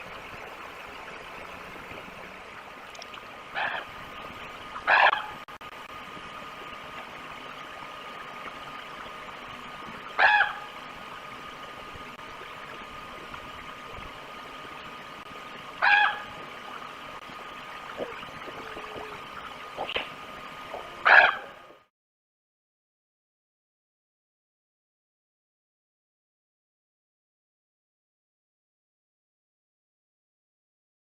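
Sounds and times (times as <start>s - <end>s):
thin steady hum: 0.0s - 21.9s
short pitched animal calls: 3.5s - 3.9s, 4.8s - 5.4s, 10.2s - 10.8s, 15.8s - 16.4s, 20.7s - 21.6s.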